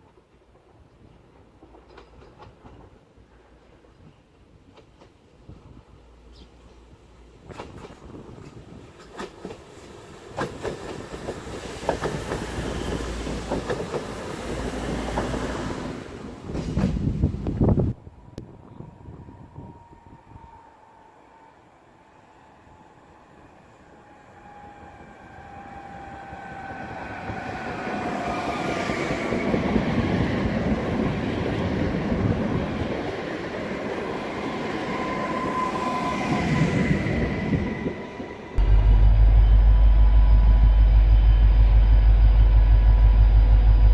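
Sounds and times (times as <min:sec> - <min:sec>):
train wheels rumbling on rails: 0:00.0 - 0:20.3, 0:24.0 - 0:43.9
train wheels clicking over rail joints: 0:00.1 - 0:03.1, 0:07.4 - 0:15.6, 0:16.4 - 0:17.6.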